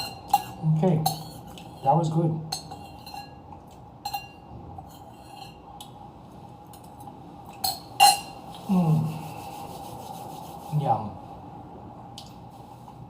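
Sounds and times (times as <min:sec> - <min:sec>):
cutlery clinking against dish: 0:00.0 - 0:01.9, 0:02.5 - 0:03.4, 0:04.0 - 0:04.4, 0:07.5 - 0:08.4
person humming: 0:08.6 - 0:09.6.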